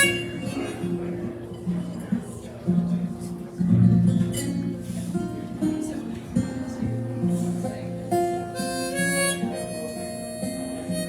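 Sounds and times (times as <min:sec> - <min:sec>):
harmonica long held notes: 0:00.0 - 0:00.9, 0:08.1 - 0:11.0
acoustic guitar picking: 0:00.0 - 0:11.0.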